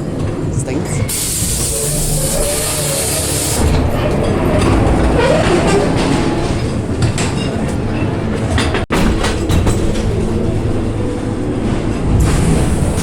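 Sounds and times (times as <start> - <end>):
ride car rumbling on track: 0.0 - 13.0
loud hiss: 1.1 - 3.6.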